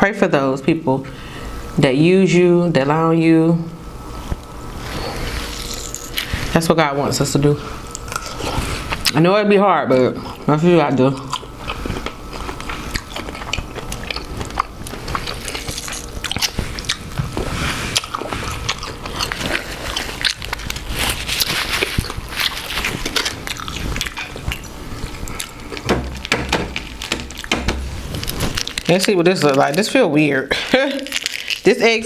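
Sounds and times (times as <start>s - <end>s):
biting and chewing: 4.4s - 6.5s, 7.8s - 9.2s, 9.9s - 30.0s, 30.8s - 31.8s
crab shell cracking: 18.1s - 30.0s, 30.9s - 31.7s.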